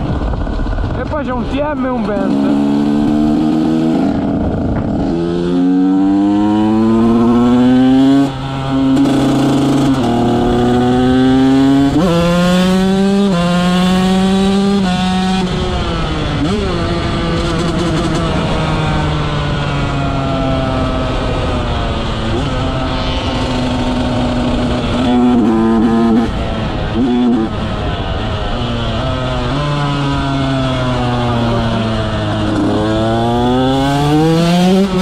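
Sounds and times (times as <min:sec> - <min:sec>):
motocross engine revving: 0:01.0 - 0:35.0.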